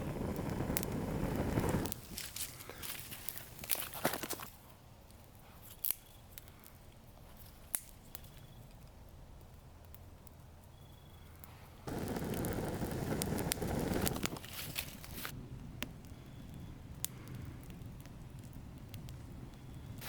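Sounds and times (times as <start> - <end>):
rush of flames: 0.0 - 4.4, 11.8 - 20.0
fire popping and crackling: 0.0 - 10.6, 11.8 - 20.0.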